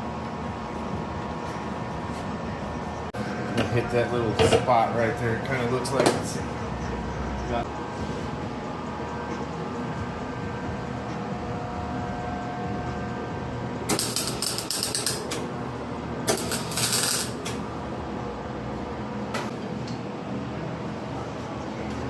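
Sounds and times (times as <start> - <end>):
steady low hum: 0.0 - 22.0
welding crackle: 13.9 - 15.3, 16.3 - 17.4.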